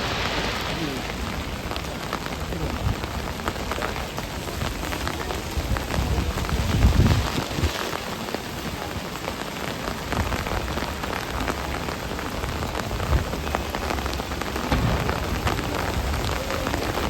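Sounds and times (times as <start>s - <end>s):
heavy rain on an umbrella: 0.0s - 17.0s
low thuds: 14.6s - 16.3s.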